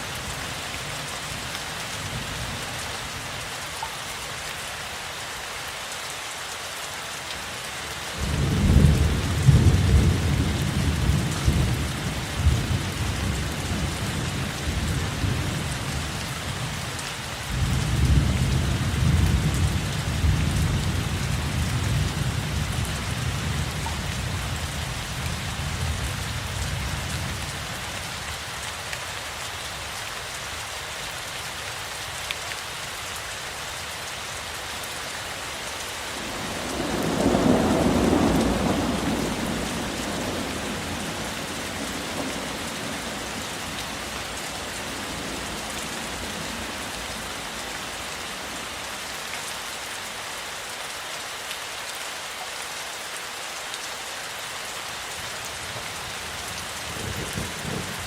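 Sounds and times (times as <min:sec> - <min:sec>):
steady rain: 0:00.0 - 0:58.0
deep thunder rolls: 0:36.4 - 0:41.2.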